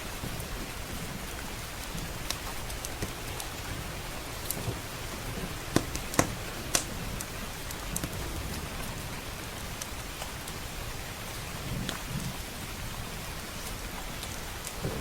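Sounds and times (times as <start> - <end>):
rain hiss: 0.0 - 15.0
wood fire popping: 0.2 - 9.0, 13.6 - 15.0.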